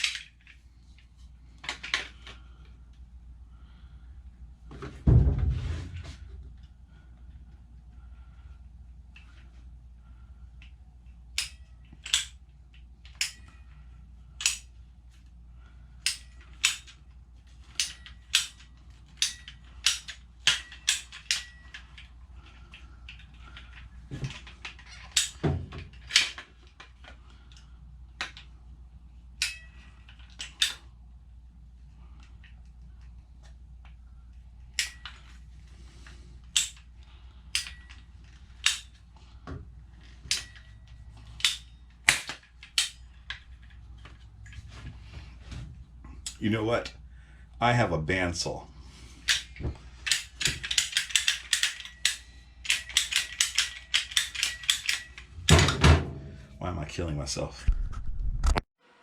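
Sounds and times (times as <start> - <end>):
pipe cutter ratcheting clicks: 11.4 - 12.4, 36.4 - 36.9, 38.6 - 39.0, 49.2 - 55.4.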